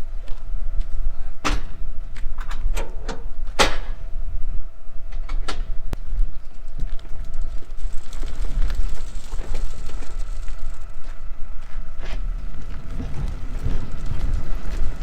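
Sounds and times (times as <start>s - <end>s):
faint hum: 0.0s - 15.0s
low rumble: 1.8s - 15.0s
metal clanks and knocks: 12.0s - 15.0s.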